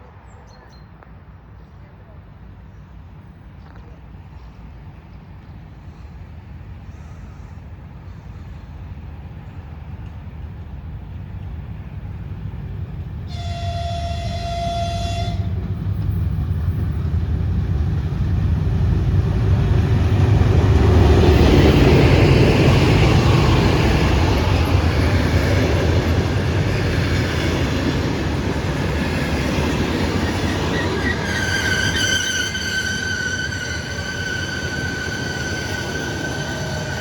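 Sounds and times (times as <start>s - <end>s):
train engine and rolling rumble: 0.0s - 37.0s
locomotive horn: 13.3s - 15.6s, 30.9s - 37.0s.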